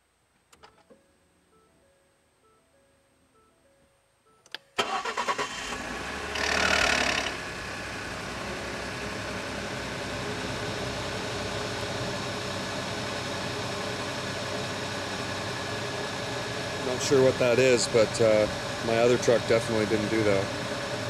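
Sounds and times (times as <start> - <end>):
ignition click: 4.4 - 5.8
starter motor cranking: 4.8 - 7.5
engine idling: 4.8 - 21.0.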